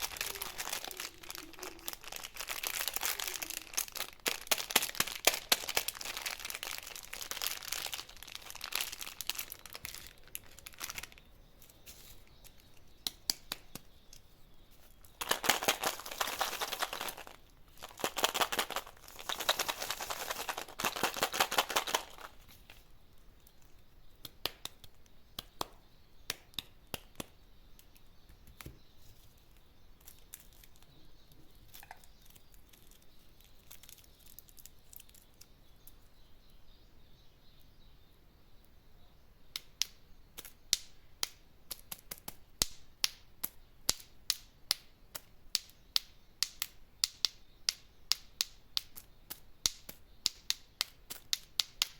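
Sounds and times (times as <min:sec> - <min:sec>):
candy wrappers crinkling: 0:00.0 - 0:14.2, 0:14.8 - 0:23.8, 0:29.4 - 0:36.0.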